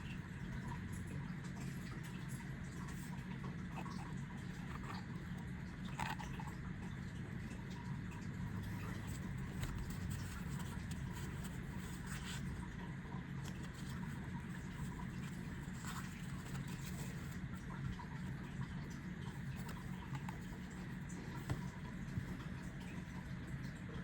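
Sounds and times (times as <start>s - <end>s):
steady low hum: 0.0s - 24.0s
cards sliding and tapping: 8.6s - 12.7s, 13.4s - 17.4s, 19.5s - 22.5s.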